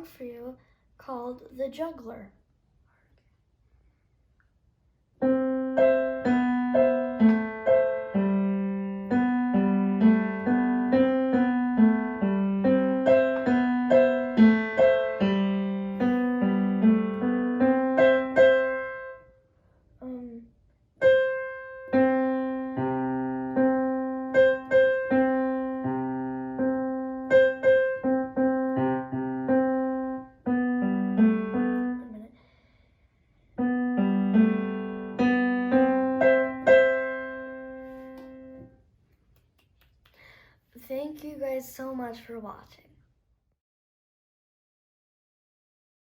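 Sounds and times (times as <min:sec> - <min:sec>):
solo piano piece: 0:05.2 - 0:19.4, 0:21.0 - 0:32.2, 0:33.6 - 0:38.8
person saying um: 0:20.0 - 0:20.5, 0:32.0 - 0:32.4.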